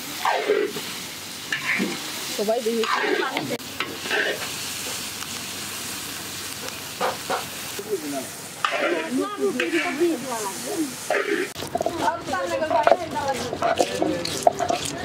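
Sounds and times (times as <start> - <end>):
meat sizzling: 0.0 - 15.0
metal spatula scraping pan: 0.2 - 0.8, 1.5 - 2.0, 2.7 - 4.5, 8.6 - 10.2, 11.1 - 15.0.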